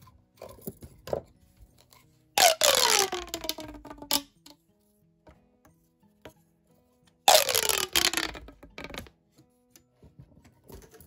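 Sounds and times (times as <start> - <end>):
plastic pop tube ratcheting: 2.4 - 4.6, 7.3 - 9.1.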